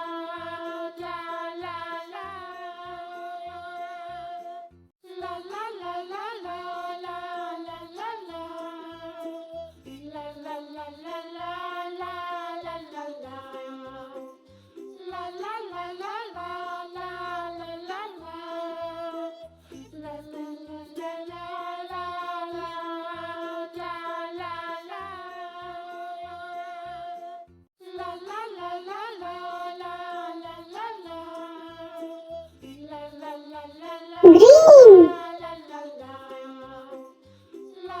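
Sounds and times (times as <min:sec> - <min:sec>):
children's song over a beat: 0:34.2 - 0:35.2.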